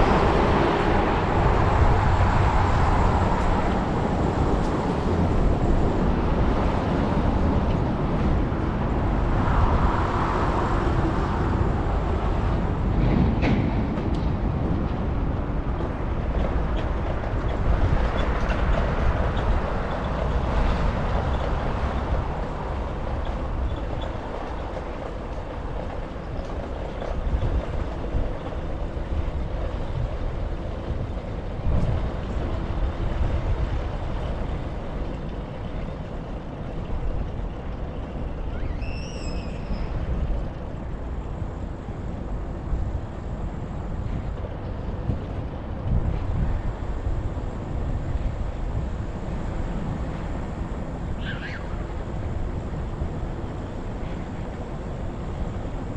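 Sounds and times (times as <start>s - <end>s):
passing road traffic: 0.0s - 55.9s
wind buffeting microphone: 0.0s - 55.9s
high squeal: 38.5s - 40.4s.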